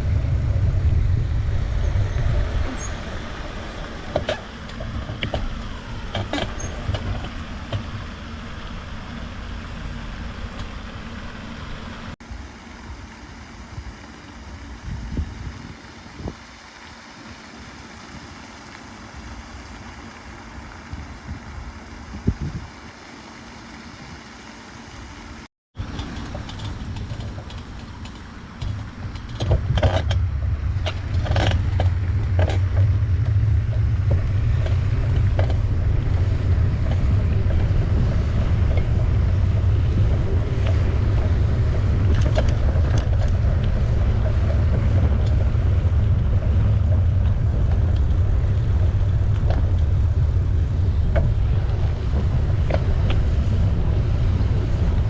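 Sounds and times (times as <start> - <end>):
wind rumble on microphone: 0.0 - 23.0, 23.8 - 55.0
road and tyre noise: 0.0 - 55.0
clicks and knocks from riding: 4.0 - 8.1, 25.8 - 55.0.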